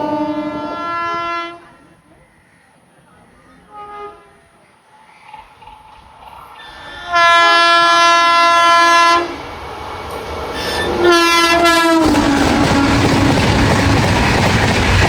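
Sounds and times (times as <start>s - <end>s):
train horn blasts: 0.0s - 1.9s, 3.7s - 4.5s, 7.0s - 9.4s, 10.6s - 13.4s
train running noise: 2.9s - 15.0s.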